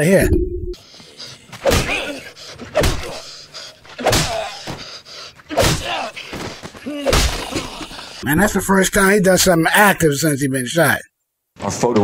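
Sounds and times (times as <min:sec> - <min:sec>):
grunting: 0:05.5 - 0:08.2.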